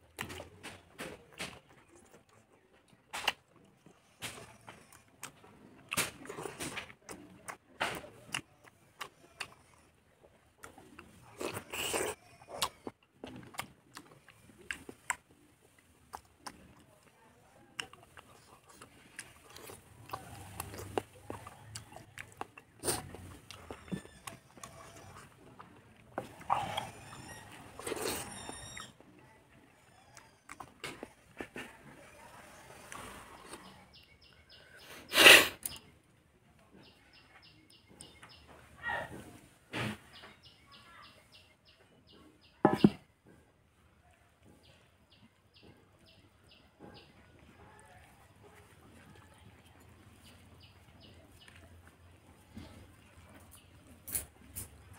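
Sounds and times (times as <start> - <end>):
chewing and mouth sounds: 0.0 - 34.6.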